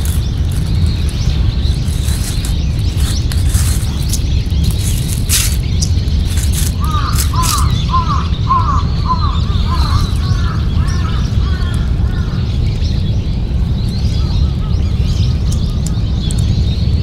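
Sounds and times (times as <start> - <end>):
bird calling repeatedly: 0.0 - 12.5
small birds chirping: 0.0 - 17.0
steady low rumble: 0.0 - 17.0.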